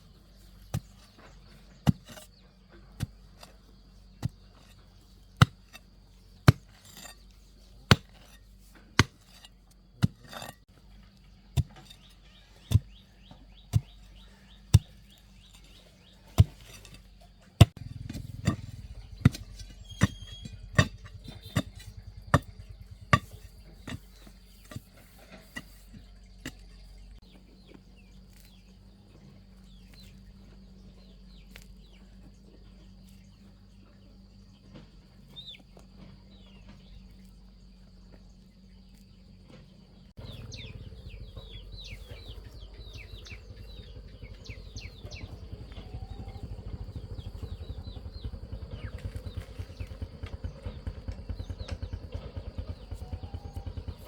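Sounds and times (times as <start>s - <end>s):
low rumble: 17.7s - 24.7s, 40.2s - 54.0s.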